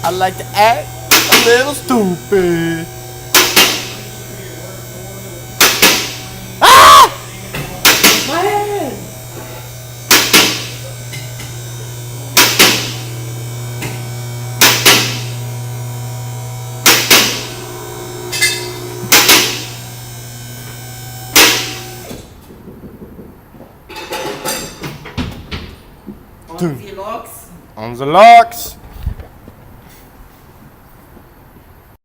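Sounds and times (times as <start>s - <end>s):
hydraulic pump motor humming: 0.0s - 22.3s.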